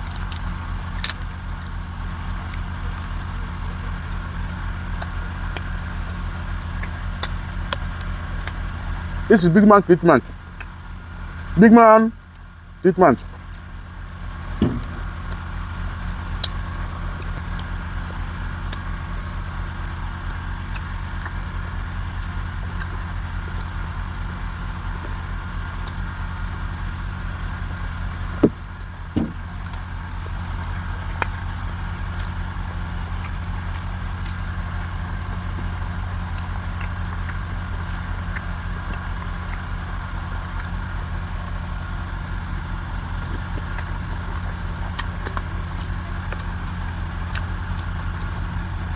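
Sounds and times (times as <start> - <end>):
low mechanical drone: 0.0 - 48.9
sharp knocks: 14.6 - 15.2, 28.4 - 29.4.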